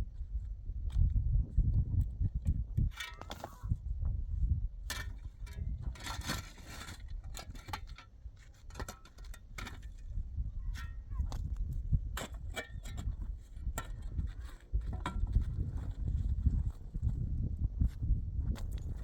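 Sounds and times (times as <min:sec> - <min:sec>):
objects clinking and scraping: 0:02.9 - 0:03.6, 0:04.9 - 0:10.1, 0:12.2 - 0:15.9.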